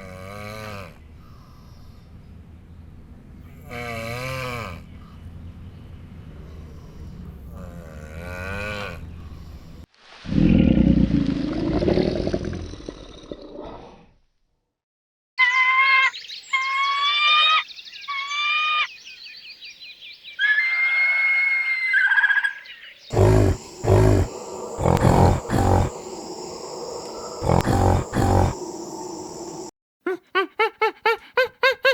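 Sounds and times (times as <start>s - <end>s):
loud low rough animal call: 23.1s - 29.7s
low grunting calls: 23.1s - 29.7s.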